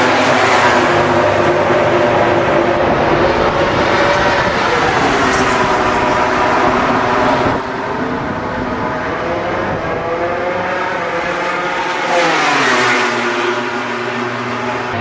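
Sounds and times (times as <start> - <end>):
racing motorcycle accelerating past: 9.2 - 15.0.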